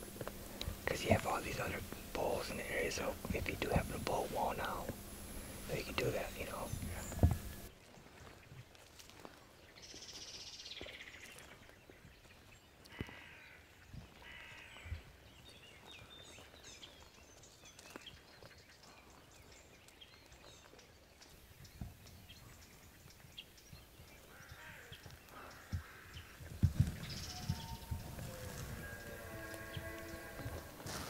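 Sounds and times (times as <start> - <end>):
harsh caw-like bird calls: 12.9 - 15.0, 24.3 - 26.4.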